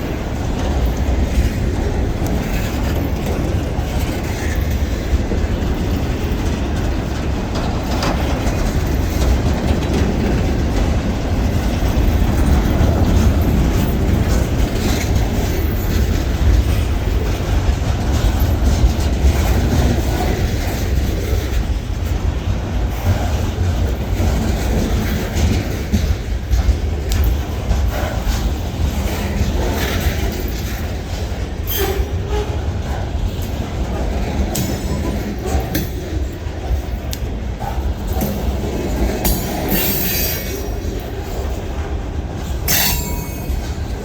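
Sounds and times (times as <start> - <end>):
freight train rumbling: 0.0 - 44.0
wheels clacking over rail joints: 0.0 - 44.0.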